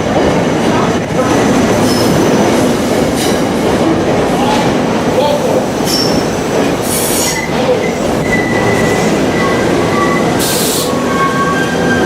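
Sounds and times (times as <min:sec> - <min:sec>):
train wheels rumbling on rail: 0:00.0 - 0:12.0
high-pitched wheel squeal: 0:07.2 - 0:12.0.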